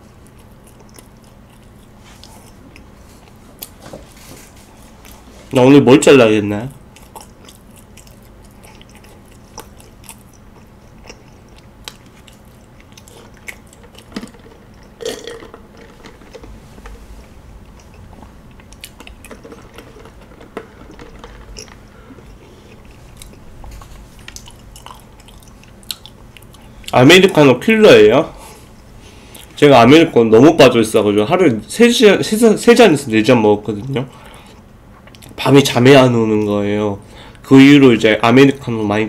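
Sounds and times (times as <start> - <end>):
chewing and biting toast: 0.1 - 3.8, 6.7 - 16.6, 17.2 - 27.0.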